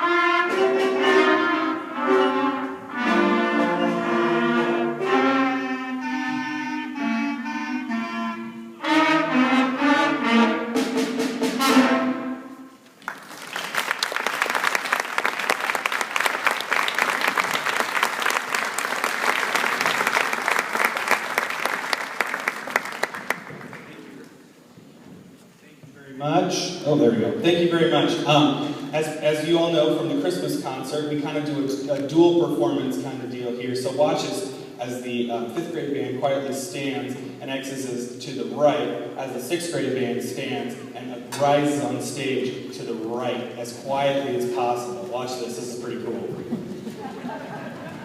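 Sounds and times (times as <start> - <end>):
concert band playing: 0.0 - 13.0
audience applause: 13.0 - 24.3, 46.5 - 48.0.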